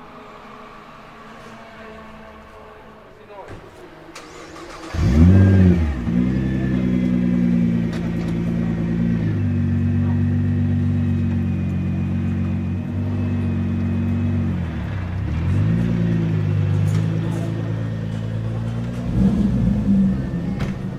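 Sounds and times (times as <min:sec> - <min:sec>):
sports car engine revving and idling: 0:04.2 - 0:20.9.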